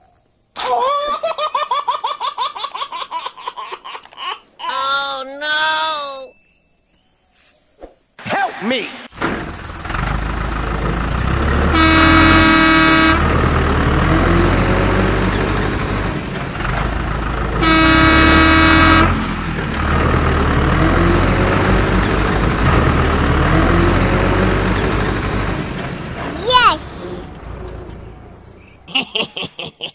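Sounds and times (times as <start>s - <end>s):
vehicle engine running: 9.2s - 28.9s
long horn honks: 11.6s - 13.6s, 17.6s - 19.4s.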